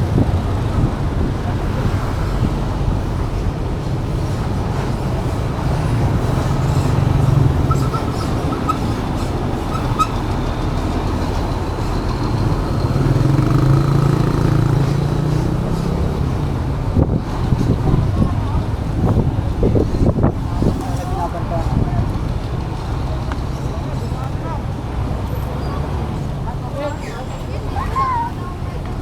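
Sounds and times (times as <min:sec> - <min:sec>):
wind buffeting microphone: 0:00.0 - 0:23.6
road traffic: 0:00.0 - 0:29.0.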